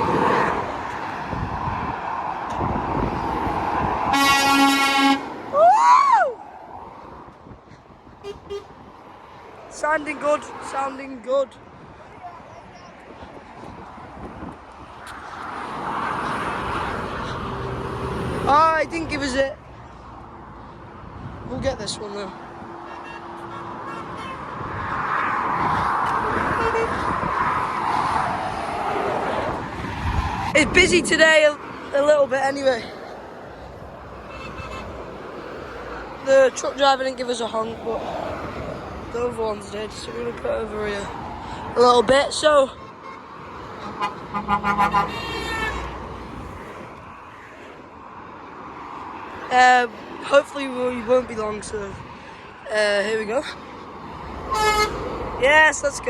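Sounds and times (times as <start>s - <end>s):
lorry passing on road: 0.0s - 56.0s
truck air horn blast: 4.1s - 5.3s, 8.2s - 8.7s, 22.8s - 24.4s, 26.1s - 27.0s, 34.3s - 34.9s, 43.8s - 46.0s, 54.5s - 55.0s.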